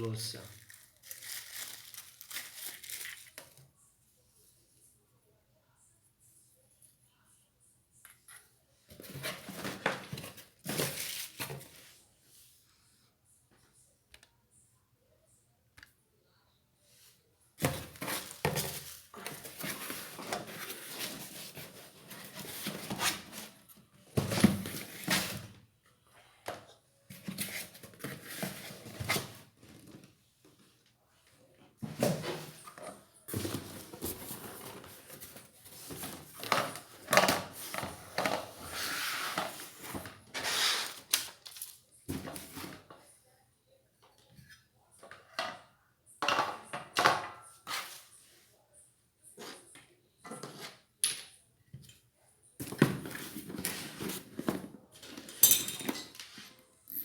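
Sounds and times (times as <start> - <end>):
packaging rustling: 0.4 - 3.6
parts clattering: 52.6 - 57.0.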